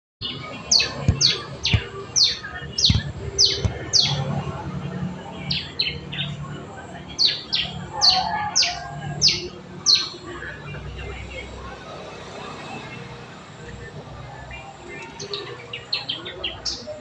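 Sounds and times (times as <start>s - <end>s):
bird chirping: 0.2s - 4.5s.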